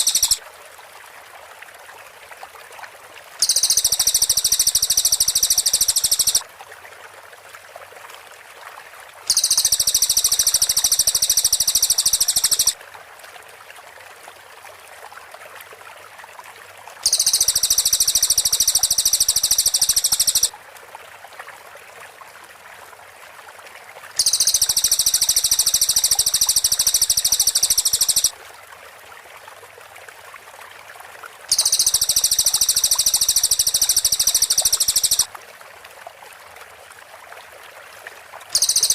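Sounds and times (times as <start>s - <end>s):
birds high rapid trilling: 0.0s - 0.4s, 3.4s - 6.4s, 9.3s - 12.8s, 17.1s - 20.5s, 24.2s - 28.3s, 31.5s - 35.3s, 38.6s - 38.9s
faint steady hiss: 0.0s - 7.1s, 8.5s - 38.9s.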